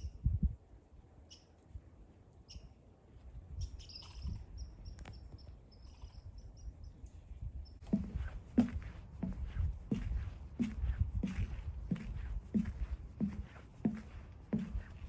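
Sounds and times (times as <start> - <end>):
songbird chirping: 3.5 - 15.0.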